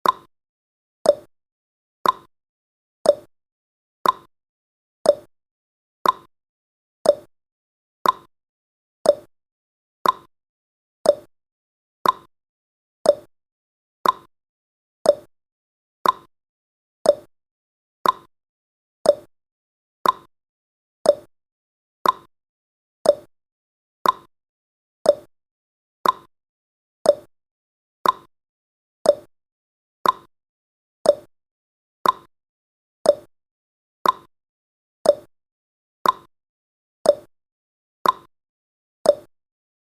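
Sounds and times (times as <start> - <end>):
clock tick-tock: 0.0 - 0.3, 1.0 - 1.3, 2.0 - 2.3, 3.0 - 3.3, 4.0 - 4.3, 5.0 - 5.3, 6.0 - 6.3, 7.0 - 7.3, 8.0 - 8.3, 9.0 - 9.3, 10.0 - 10.3, 11.0 - 11.3, 12.0 - 12.3, 13.0 - 13.3, 14.0 - 14.3, 15.0 - 15.3, 16.0 - 16.3, 17.0 - 17.3, 18.0 - 18.3, 19.0 - 19.3, 20.0 - 20.3, 21.0 - 21.3, 22.0 - 22.3, 23.0 - 23.3, 24.0 - 24.3, 25.0 - 25.3, 26.0 - 26.3, 27.0 - 27.3, 28.0 - 28.3, 29.0 - 29.3, 30.0 - 30.3, 31.0 - 31.3, 32.0 - 32.3, 33.0 - 33.3, 34.0 - 34.3, 35.0 - 35.3, 36.0 - 36.3, 37.0 - 37.3, 38.0 - 38.3, 39.0 - 39.4.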